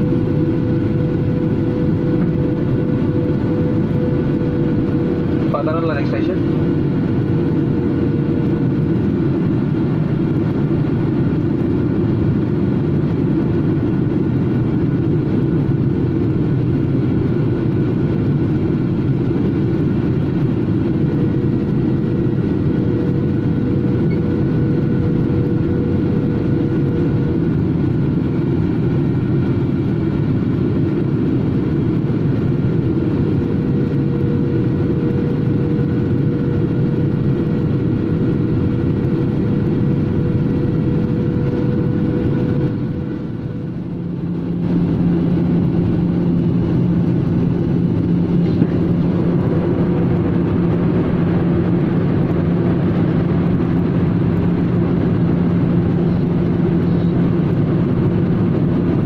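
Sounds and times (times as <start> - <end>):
airliner engine and airflow rumble: 0.0 - 59.0
faint hum: 20.4 - 58.9.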